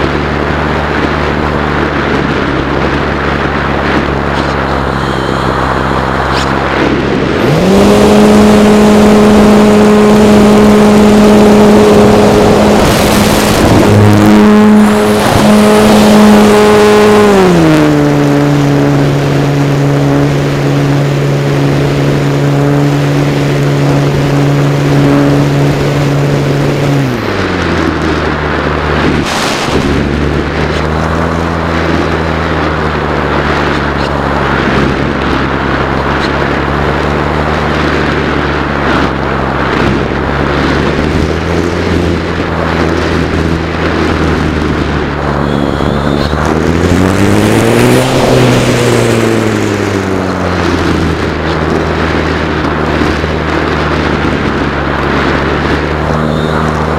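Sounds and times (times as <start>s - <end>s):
model airplane motor and propeller: 0.0s - 56.9s.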